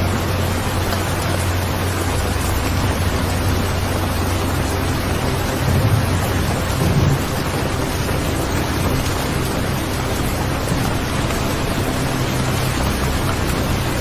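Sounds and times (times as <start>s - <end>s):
heavy rain: 0.0s - 14.0s
low rumbles of thunder: 5.0s - 9.6s.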